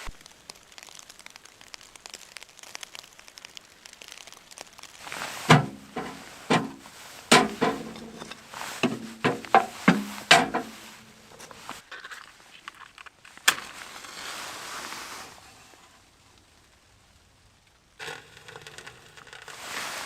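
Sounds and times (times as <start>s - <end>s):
faint crackling: 0.0s - 20.0s
footsteps crunching in snow: 5.0s - 11.8s.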